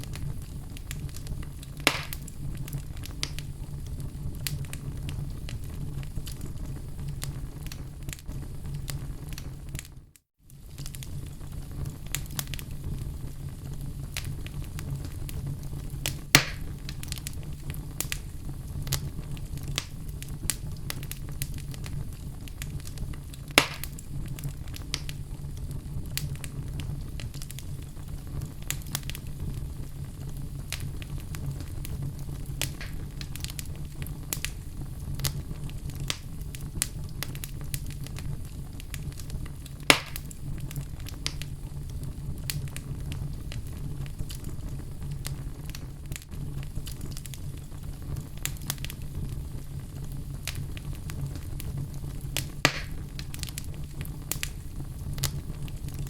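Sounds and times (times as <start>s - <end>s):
fire rumbling: 0.0s - 56.0s
small fire crackles: 0.0s - 56.0s
loud sharp pops: 1.8s - 2.3s, 16.4s - 16.7s, 23.5s - 24.0s, 32.6s - 33.1s, 39.9s - 40.3s, 52.4s - 53.0s.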